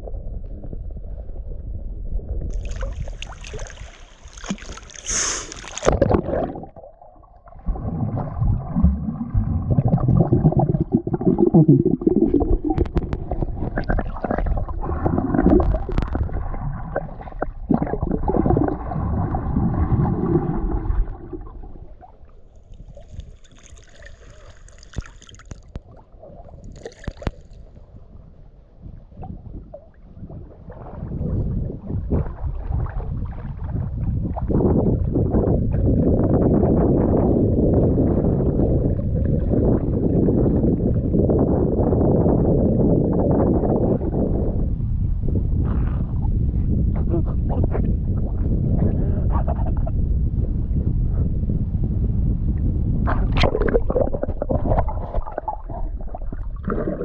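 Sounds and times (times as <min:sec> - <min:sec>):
water sloshing and gurgling: 0:00.0 - 0:57.0.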